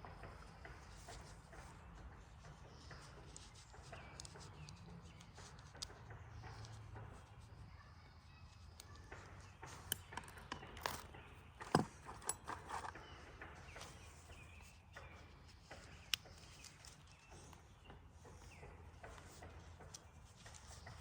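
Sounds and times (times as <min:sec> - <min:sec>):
hand tools clicking and knocking: 0:09.1 - 0:14.4.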